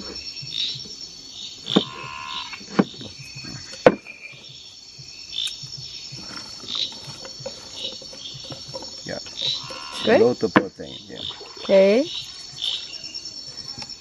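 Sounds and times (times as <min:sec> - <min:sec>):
insect and frog chorus: 0:00.0 - 0:14.0
sharp knocks: 0:01.6 - 0:04.4.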